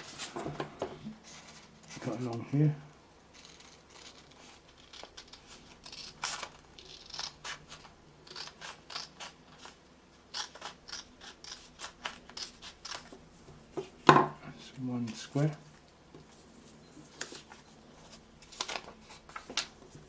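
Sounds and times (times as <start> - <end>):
scissors cutting paper: 3.4 - 13.1.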